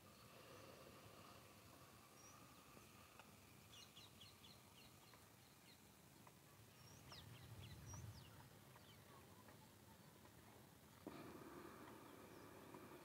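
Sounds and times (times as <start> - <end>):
bird chirping: 2.0 - 10.1, 11.0 - 13.0.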